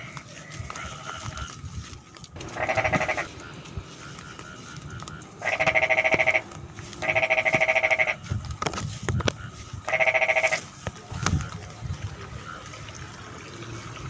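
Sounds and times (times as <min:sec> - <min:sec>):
frog chorus: 0:00.0 - 0:13.7
frog pulsed calls: 0:02.4 - 0:08.4, 0:09.2 - 0:10.7.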